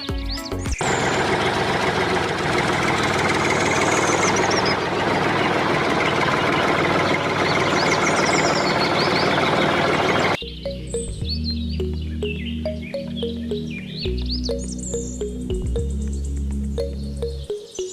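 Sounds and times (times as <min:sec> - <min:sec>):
dense machine noise: 0:00.8 - 0:10.4.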